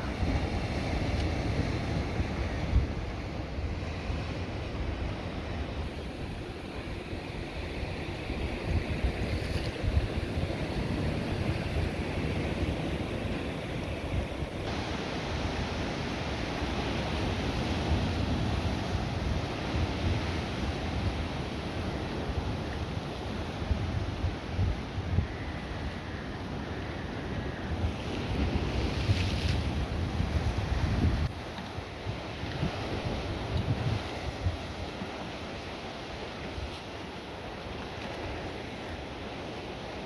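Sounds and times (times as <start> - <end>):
wind on the microphone: 0.0 - 39.0
water waves: 0.0 - 40.0.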